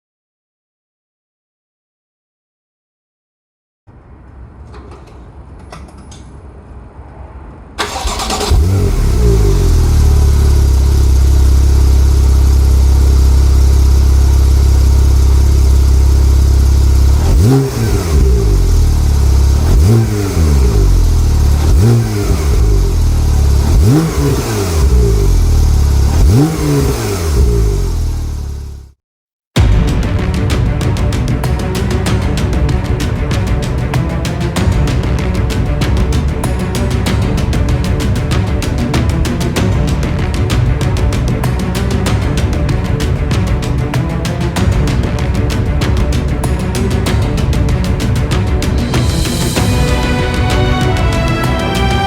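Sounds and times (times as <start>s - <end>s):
car engine revving: 7.8s - 28.9s
car engine starting and idling: 7.8s - 28.9s.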